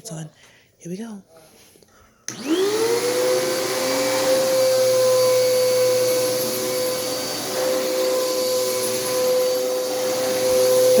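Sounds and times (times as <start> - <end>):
vacuum cleaner motor whining: 2.3 - 11.0.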